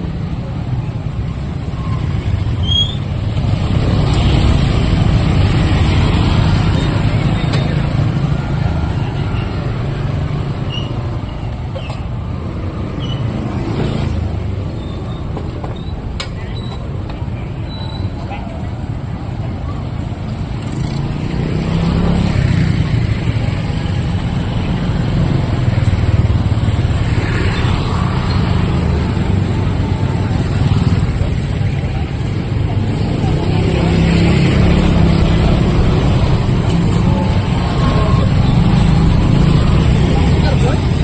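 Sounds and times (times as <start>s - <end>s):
steady street hum: 0.0s - 41.0s
vehicle engines passing: 0.0s - 41.0s.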